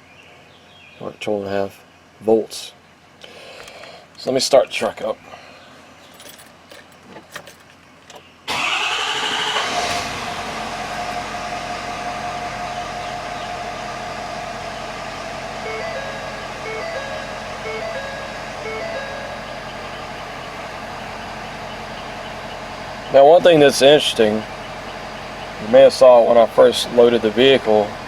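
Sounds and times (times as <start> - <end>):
diesel engine starting and idling: 8.5 - 28.0
short two-tone beeps: 15.7 - 19.8.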